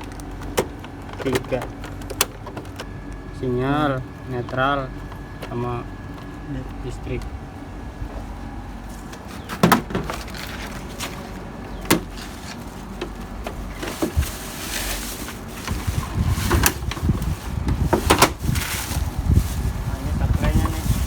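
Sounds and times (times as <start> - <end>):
hands rustling: 10.1 - 21.0.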